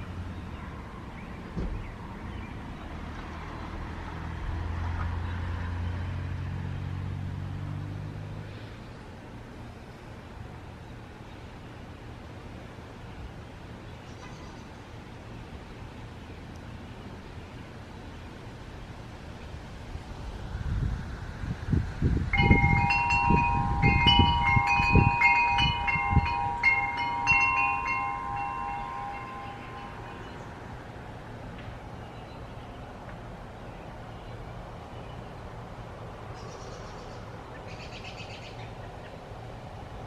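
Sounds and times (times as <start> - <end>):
chimes ringing: 22.4 - 30.4.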